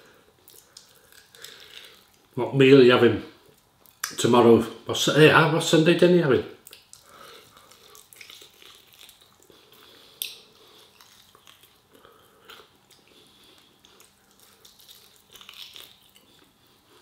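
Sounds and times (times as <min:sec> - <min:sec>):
lip smacks: 0:00.4 - 0:02.3, 0:06.6 - 0:16.6
wet chewing: 0:00.4 - 0:02.4, 0:06.6 - 0:17.0.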